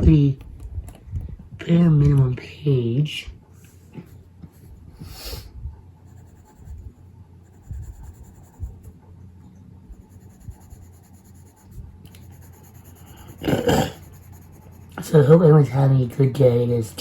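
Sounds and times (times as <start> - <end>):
low steady hum: 0.0 - 17.0
pencil scratching on paper: 6.1 - 9.0, 9.8 - 16.0.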